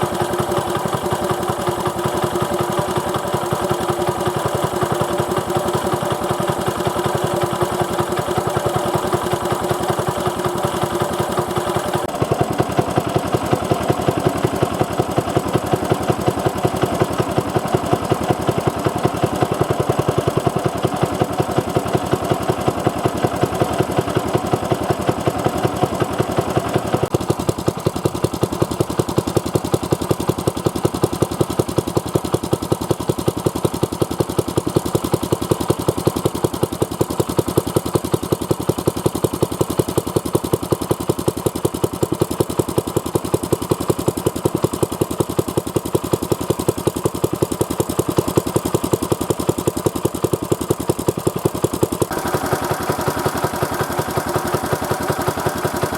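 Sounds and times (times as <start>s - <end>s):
small engine running: 0.0s - 55.9s.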